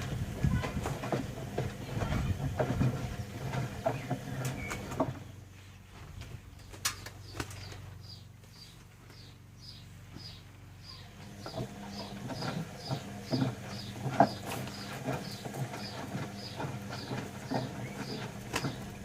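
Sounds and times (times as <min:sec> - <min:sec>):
washing machine drum tumbling laundry: 0:00.0 - 0:05.4, 0:11.2 - 0:19.0
washing machine motor hum: 0:00.0 - 0:06.6, 0:09.4 - 0:19.0.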